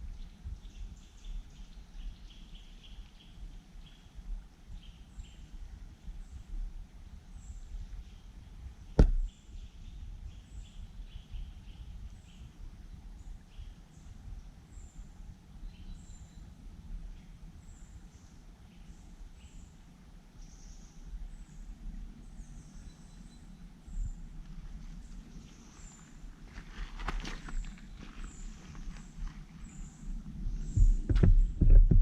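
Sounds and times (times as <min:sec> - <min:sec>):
wind rumble on microphone: 0:00.0 - 0:32.0
small birds chirping: 0:00.1 - 0:19.8, 0:20.4 - 0:31.8
sharp knock: 0:09.0 - 0:09.3.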